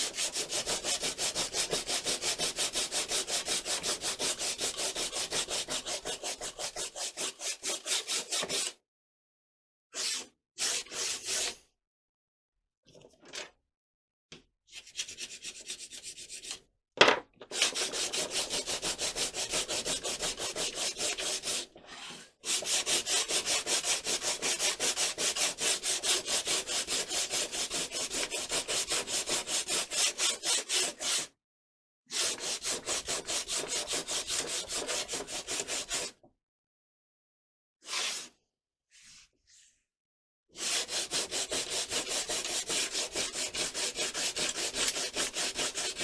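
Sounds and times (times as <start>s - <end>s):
sandpaper rubbing strokes: 40.6s - 46.0s.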